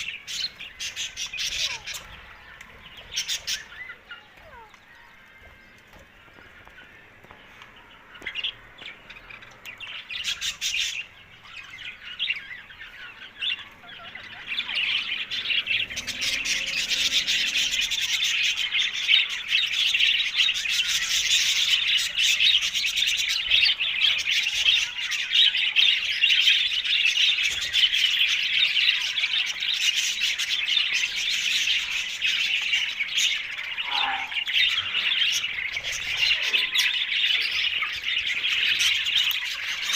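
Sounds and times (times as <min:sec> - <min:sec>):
parakeet chirping and squawking: 0:00.0 - 0:05.6, 0:26.8 - 0:39.9.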